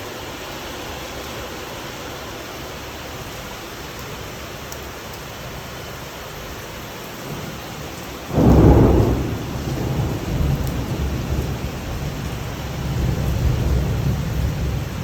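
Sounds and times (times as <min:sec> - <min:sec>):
heavy rain hissing: 0:00.0 - 0:15.0
thunder crack and rumble: 0:08.3 - 0:15.0.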